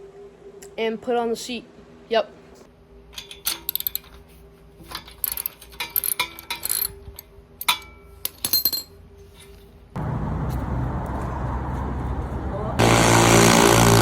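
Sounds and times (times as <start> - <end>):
faint steady hum: 0.0 - 13.0
metal tools clinking: 3.1 - 9.6.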